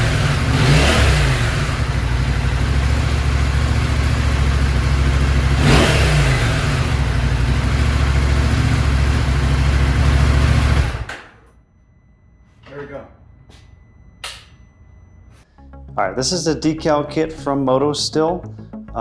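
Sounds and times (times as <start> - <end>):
motorcycle engine idling: 0.0 - 11.1
motorcycle throttle blip: 14.2 - 14.6.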